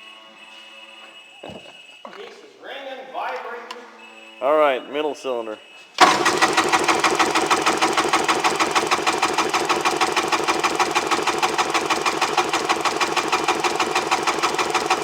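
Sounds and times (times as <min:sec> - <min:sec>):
starter cranking two-stroke engine: 0:06.0 - 0:15.0.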